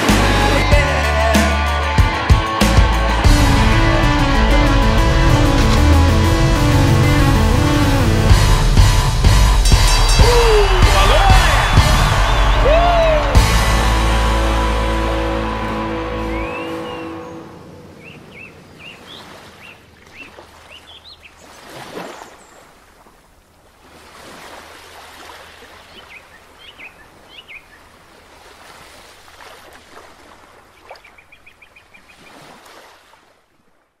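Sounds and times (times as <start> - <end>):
steady rushing noise: 3.2 - 18.7
small birds chirping: 16.4 - 22.8, 25.6 - 28.0, 30.7 - 32.5.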